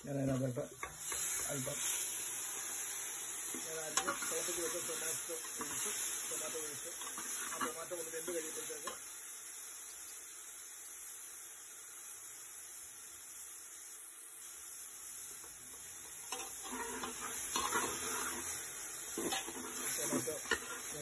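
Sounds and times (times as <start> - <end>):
onions sizzling in oil: 0.0 - 21.0
spatula scraping a metal pot: 16.3 - 21.0.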